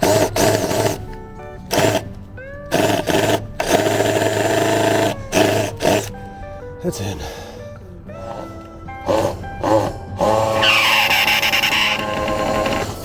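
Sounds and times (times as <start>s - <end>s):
music with rhythmic beat: 0.0s - 13.0s.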